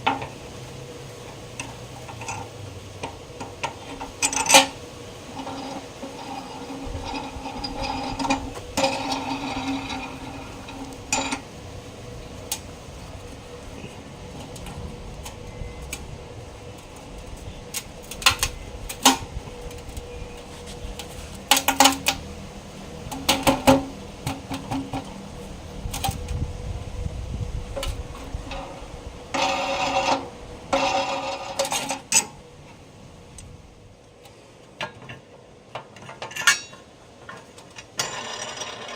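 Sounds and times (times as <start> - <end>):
metal scraping and rattling: 0.0 - 33.6, 34.8 - 38.9
metal tools clicking and clanking: 1.6 - 11.5, 16.8 - 22.3, 27.8 - 32.3, 34.8 - 38.9.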